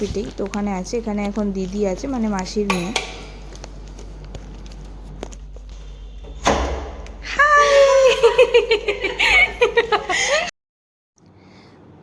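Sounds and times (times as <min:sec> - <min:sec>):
door thud: 0:02.7 - 0:03.4, 0:06.2 - 0:07.3.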